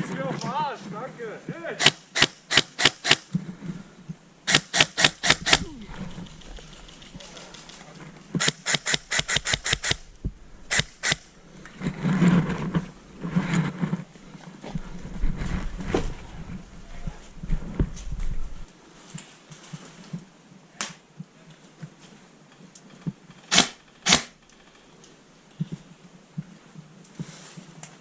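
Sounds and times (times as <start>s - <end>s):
airsoft guns firing: 1.8s - 3.3s, 4.5s - 7.3s, 8.4s - 10.1s, 10.7s - 11.3s, 23.5s - 24.4s
muffled rustling: 5.4s - 8.4s, 11.4s - 20.3s.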